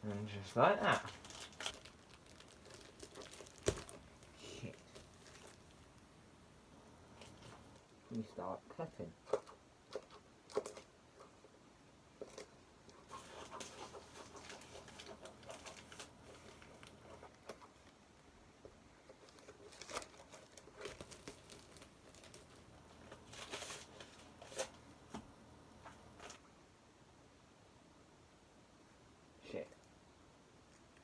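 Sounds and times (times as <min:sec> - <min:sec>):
packaging rustling and tearing: 0:00.6 - 0:06.2, 0:12.2 - 0:17.9, 0:19.1 - 0:26.4
scissors cutting packaging: 0:00.9 - 0:05.8.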